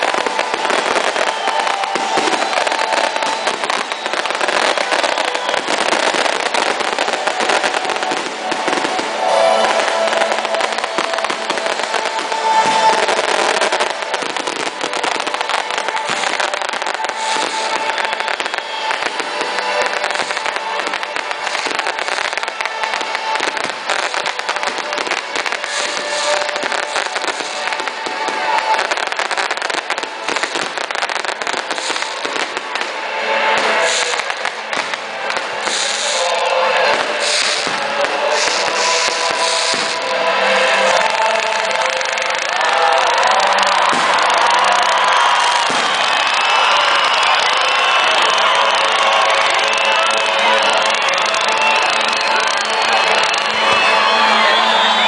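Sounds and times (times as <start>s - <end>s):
fireworks crackling: 0.0s - 55.0s.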